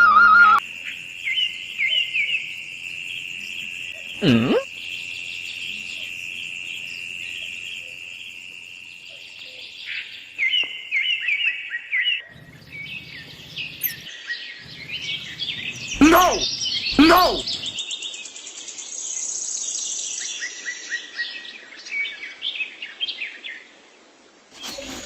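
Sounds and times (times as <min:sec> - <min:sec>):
high insect-like drone: 0:00.6 - 0:09.2
birds chirping: 0:04.0 - 0:05.8, 0:12.2 - 0:17.8.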